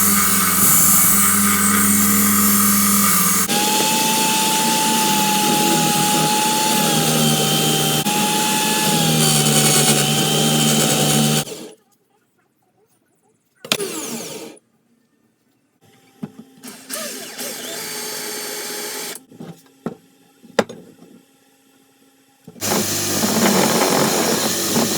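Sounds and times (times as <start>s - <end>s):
power tool whining: 0.0s - 11.5s, 16.7s - 19.2s, 22.6s - 24.9s.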